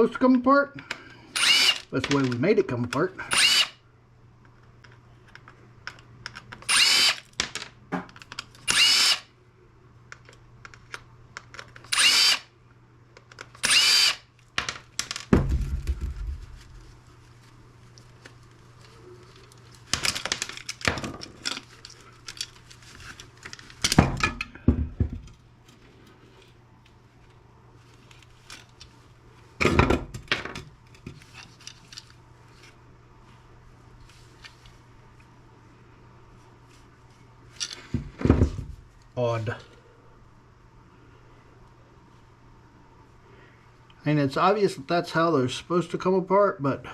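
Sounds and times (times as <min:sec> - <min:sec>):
power drill whining: 0:01.3 - 0:01.9, 0:03.2 - 0:03.8, 0:06.6 - 0:07.2, 0:08.7 - 0:09.3, 0:11.9 - 0:12.5, 0:13.6 - 0:14.3
heavy thud: 0:15.3 - 0:16.5.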